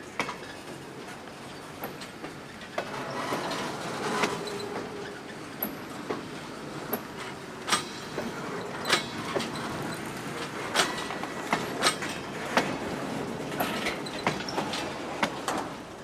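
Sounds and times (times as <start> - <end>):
train wheels clacking: 6.9 - 15.7.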